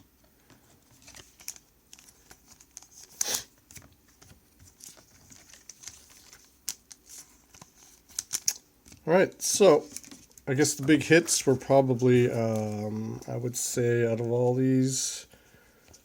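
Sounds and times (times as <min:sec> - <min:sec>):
plastic card sleeves crinkling: 0:00.5 - 0:13.2.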